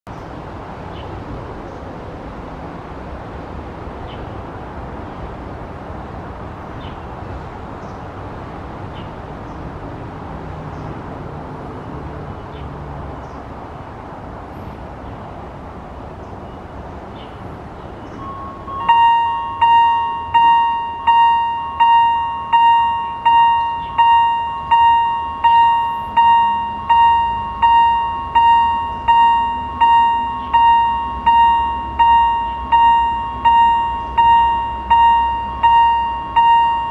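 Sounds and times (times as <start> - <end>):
traffic noise: 0.1 - 36.9
level crossing warning bell: 17.9 - 36.9.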